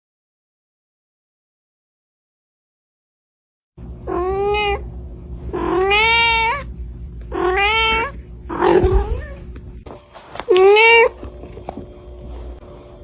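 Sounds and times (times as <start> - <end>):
cat meowing: 4.0 - 4.9, 5.5 - 6.7, 7.3 - 9.5, 10.5 - 11.2.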